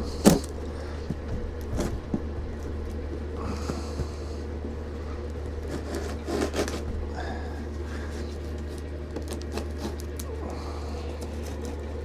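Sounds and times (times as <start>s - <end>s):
cardboard package scraping: 0.0s - 2.8s, 5.0s - 10.4s
steady low hum: 0.0s - 12.0s.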